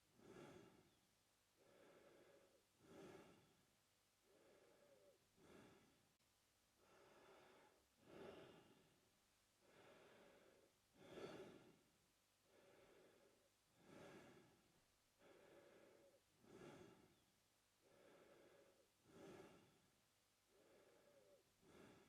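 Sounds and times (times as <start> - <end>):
man breathing through mouth: 0.2 - 1.0, 1.6 - 3.6, 4.2 - 6.0, 6.8 - 8.8, 9.6 - 11.8, 12.5 - 14.6, 15.2 - 17.2, 17.8 - 19.9, 20.5 - 22.0.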